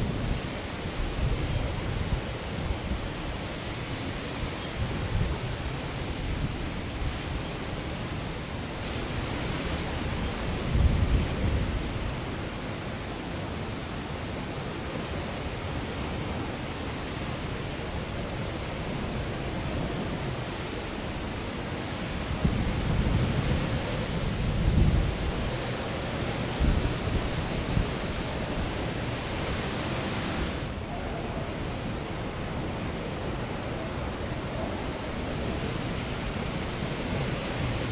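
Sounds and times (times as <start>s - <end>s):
gusty wind buffeting microphone: 8.7s - 12.4s, 22.0s - 37.9s.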